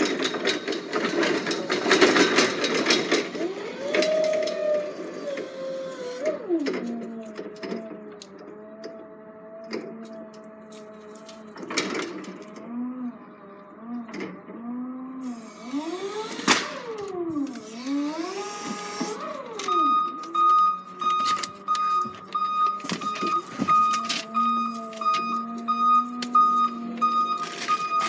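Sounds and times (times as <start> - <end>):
machine motor whine: 3.3 - 28.0
reversing alarm beeping: 17.9 - 28.0.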